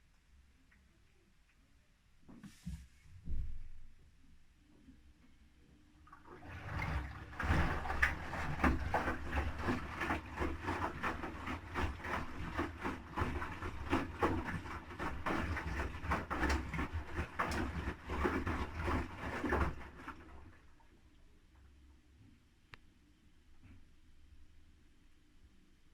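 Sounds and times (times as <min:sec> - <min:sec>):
washing machine laundry sloshing: 0:06.1 - 0:21.0.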